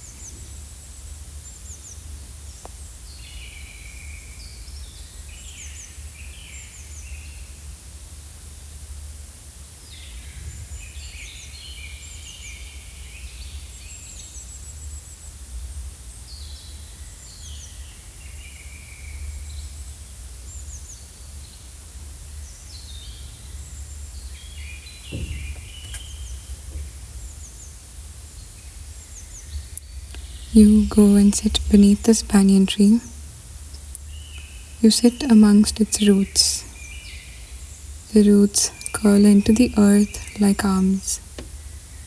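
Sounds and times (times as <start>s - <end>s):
small birds chirping: 22.3s - 42.0s
dull thud: 25.0s - 27.2s.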